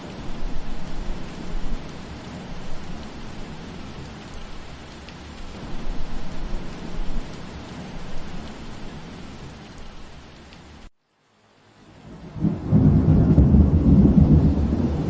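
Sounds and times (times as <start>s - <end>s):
raindrop ticks: 0.0s - 11.2s
rain falling: 0.0s - 15.0s.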